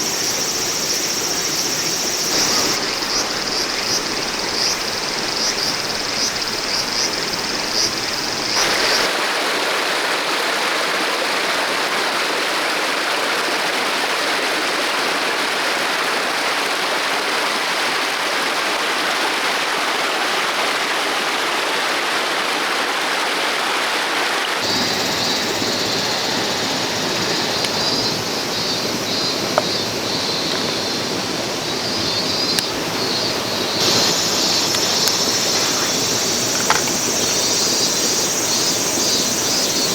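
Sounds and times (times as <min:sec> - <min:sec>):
insects shrilling: 0:00.0 - 0:09.1, 0:24.6 - 0:39.9
stream rushing over rocks: 0:00.0 - 0:39.9.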